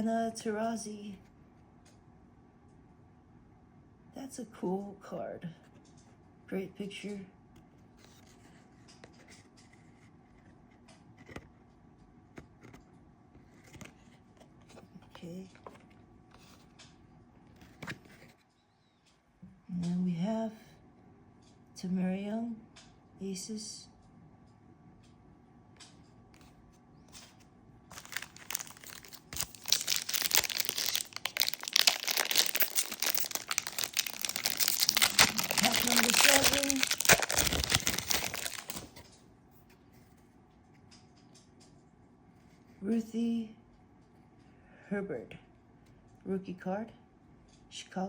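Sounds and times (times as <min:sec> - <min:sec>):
cards rustling against each other: 0:27.2 - 0:39.1
wrapper crinkling and tearing: 0:27.9 - 0:39.0.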